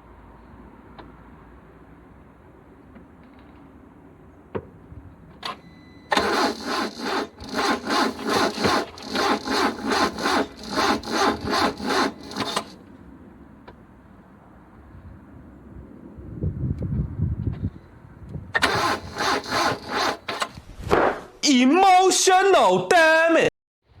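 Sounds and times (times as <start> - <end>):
starter motor cranking engine: 5.4 - 12.8, 18.6 - 20.7.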